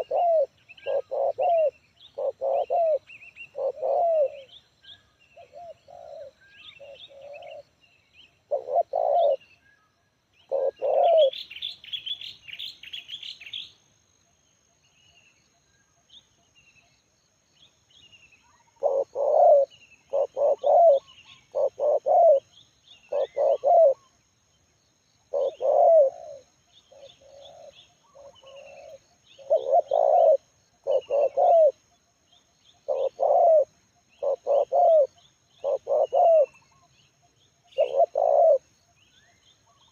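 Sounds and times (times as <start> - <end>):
dove cooing: 0.0 - 4.5, 5.4 - 7.7, 8.5 - 9.4, 10.5 - 11.4, 18.8 - 22.5, 23.1 - 24.1, 25.3 - 31.8, 32.8 - 36.9, 37.7 - 38.7
small birds chirping: 0.0 - 13.8, 14.8 - 39.9.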